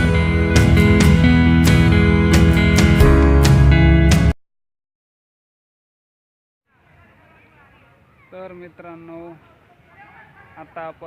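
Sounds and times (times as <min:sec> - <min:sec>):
background music: 0:00.0 - 0:04.4
faint background noise: 0:06.7 - 0:11.0.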